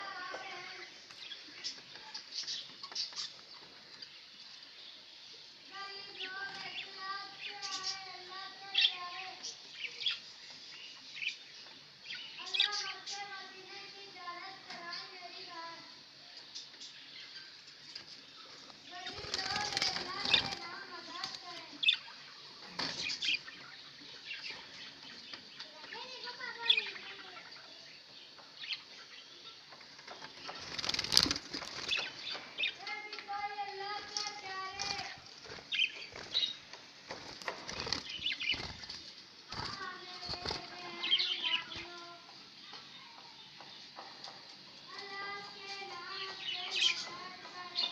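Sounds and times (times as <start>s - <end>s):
budgies chattering: 0.1s - 4.3s, 18.4s - 42.0s, 45.2s - 47.9s.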